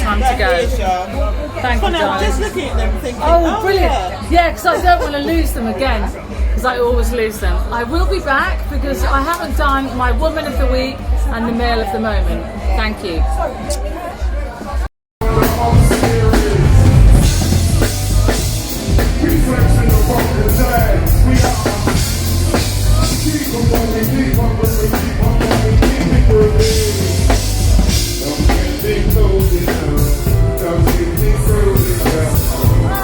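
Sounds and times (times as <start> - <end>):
drum kit beat: 0.0 - 13.9, 14.7 - 33.0
band music: 14.7 - 33.0
heavy bass: 15.2 - 33.0
person singing: 15.2 - 33.0.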